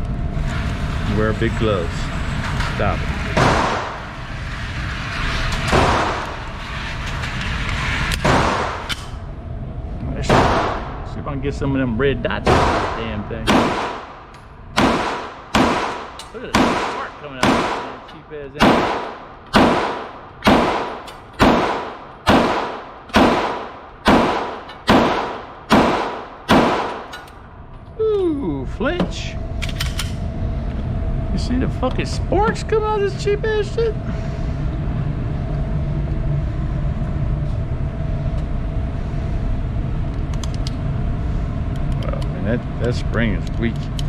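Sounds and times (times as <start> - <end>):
steady low rumble: 0.0 - 44.0
pistol shots with echo: 10.3 - 11.0, 12.4 - 27.2.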